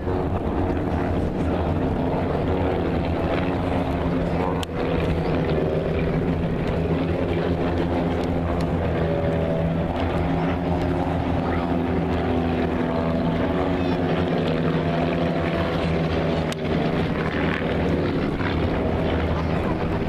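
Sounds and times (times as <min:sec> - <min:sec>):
engine droning: 0:00.0 - 0:20.0.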